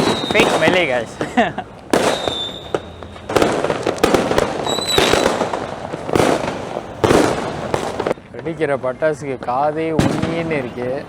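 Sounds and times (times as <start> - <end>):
firework whistle: 0.0 - 1.2, 1.9 - 8.2
firecracker bangs: 0.0 - 8.2, 9.9 - 11.0
firework crackling: 0.0 - 8.3, 9.3 - 11.0.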